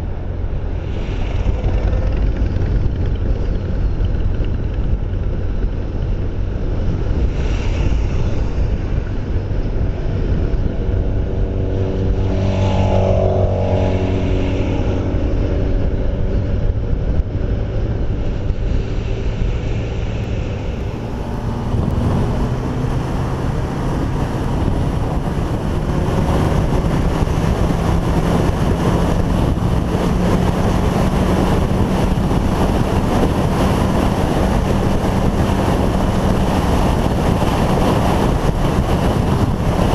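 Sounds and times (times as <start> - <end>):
motorcycle engine running: 0.0 - 7.3, 8.5 - 39.9
wind noise on microphone: 0.0 - 39.9
vehicle passing by: 6.6 - 39.9.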